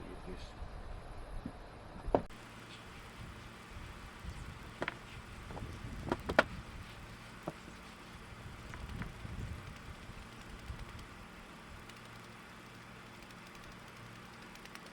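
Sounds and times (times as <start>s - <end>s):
low steady hum: 0.0s - 14.9s
wooden boards and tools knocking: 4.8s - 6.5s.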